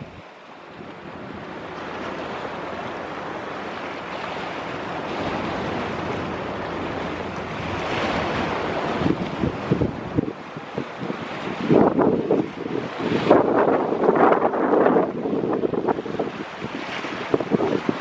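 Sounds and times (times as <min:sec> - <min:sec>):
rough sea: 0:00.0 - 0:18.0
strong wind: 0:00.0 - 0:18.0
wind buffeting microphone: 0:00.0 - 0:18.0.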